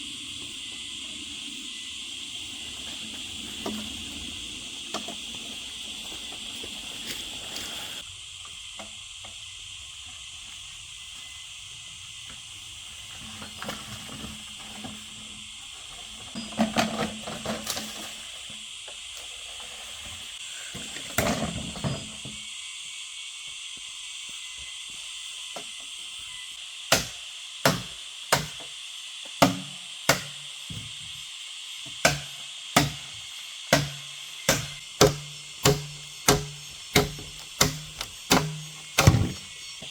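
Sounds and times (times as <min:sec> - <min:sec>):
steady high hiss: 0:00.0 - 0:39.9
sharp knocks with dull thuds: 0:26.9 - 0:28.7, 0:29.4 - 0:31.1, 0:31.9 - 0:39.6.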